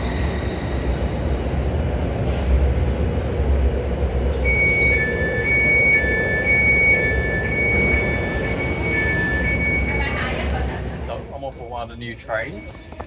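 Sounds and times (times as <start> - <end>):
subway train rumbling on track: 0.0 - 13.0
two-tone electronic beeping: 4.5 - 10.2.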